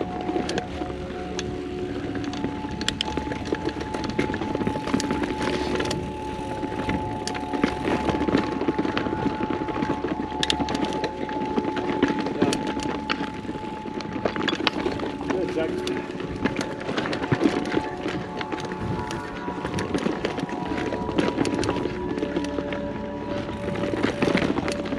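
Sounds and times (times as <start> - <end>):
bike clicking and rattling: 0.0 - 24.9
bike tyres rolling on dirt: 0.0 - 24.9
steady high hum: 0.0 - 24.9.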